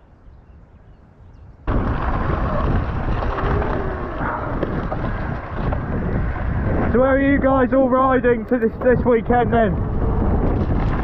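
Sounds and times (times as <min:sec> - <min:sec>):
wind buffeting microphone: 0:00.0 - 0:11.0
mountain bike trail rumble: 0:01.3 - 0:11.0.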